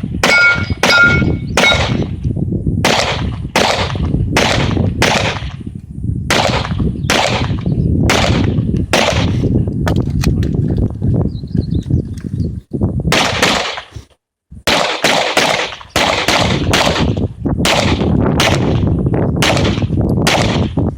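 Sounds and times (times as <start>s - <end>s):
handgun shots: 0.2s - 2.0s
metallic ring: 0.3s - 1.8s.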